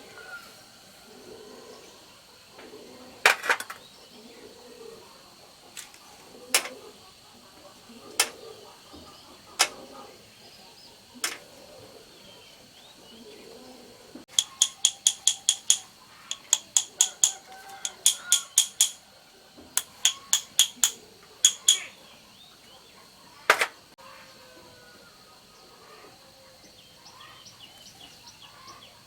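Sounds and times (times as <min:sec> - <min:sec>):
tapping on metal: 0:14.3 - 0:19.0, 0:19.8 - 0:21.9.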